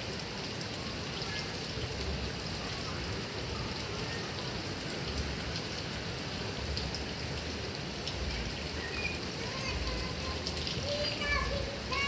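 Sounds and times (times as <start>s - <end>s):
heavy rain hiss: 0.0s - 12.0s
rain drop ticks: 3.6s - 12.0s.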